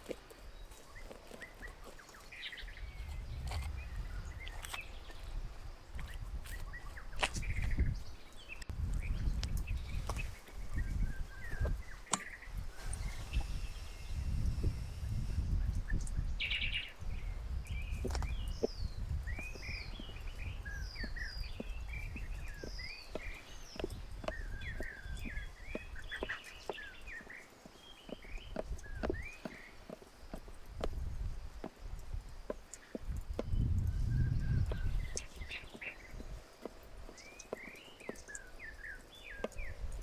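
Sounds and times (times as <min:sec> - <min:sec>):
small birds chirping: 0:00.0 - 0:40.0
low gusty rumble: 0:02.6 - 0:23.0, 0:33.1 - 0:37.0.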